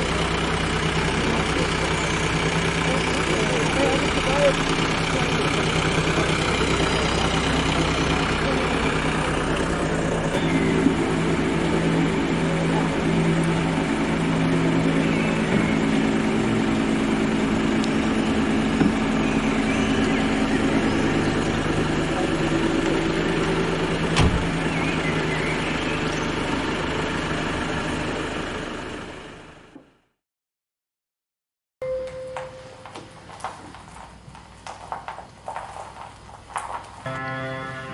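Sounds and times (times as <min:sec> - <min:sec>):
low drone with sustained tones: 0:10.2 - 0:22.6, 0:37.1 - 0:37.9.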